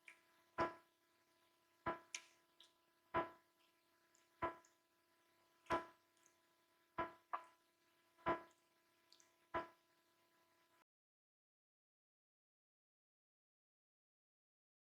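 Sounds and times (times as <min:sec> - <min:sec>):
high drip-like clicks: 0:00.0 - 0:00.9, 0:01.5 - 0:04.8, 0:05.6 - 0:06.4, 0:07.0 - 0:07.6, 0:08.2 - 0:09.8.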